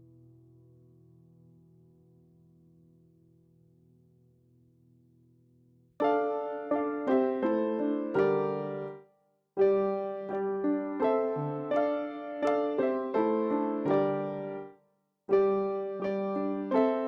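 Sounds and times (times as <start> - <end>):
piano melody: 6.0 - 17.0.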